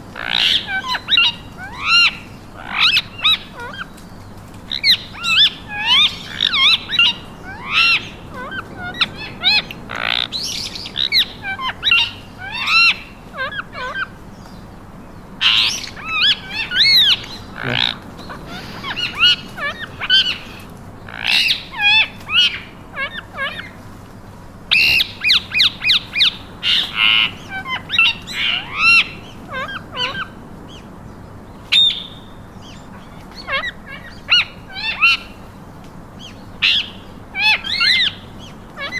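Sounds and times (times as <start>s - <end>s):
parakeets chattering: 0.0s - 38.9s.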